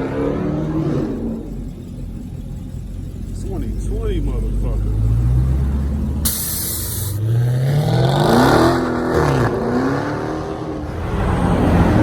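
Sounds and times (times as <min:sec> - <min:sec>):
car engine revving: 0:00.0 - 0:12.0
brief hiss: 0:06.3 - 0:07.2.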